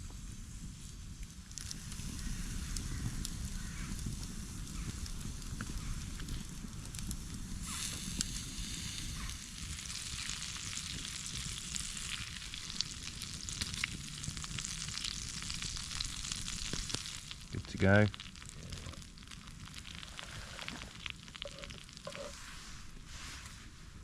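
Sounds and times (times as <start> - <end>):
campfire crackles and pops: 0.0 - 23.6
food sizzling in a frying pan: 7.0 - 22.9.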